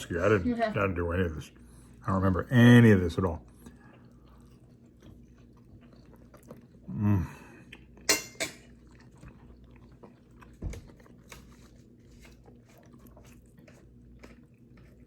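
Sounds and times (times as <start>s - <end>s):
cutlery clinking on a plate: 8.1s - 8.7s.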